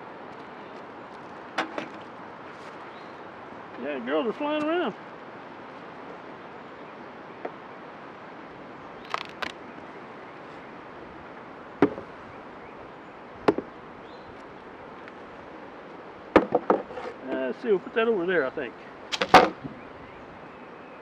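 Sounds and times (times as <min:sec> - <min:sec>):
wooden hive parts knocking: 0:09.1 - 0:09.6, 0:11.8 - 0:12.1, 0:13.4 - 0:13.7, 0:16.4 - 0:16.9, 0:19.1 - 0:19.7.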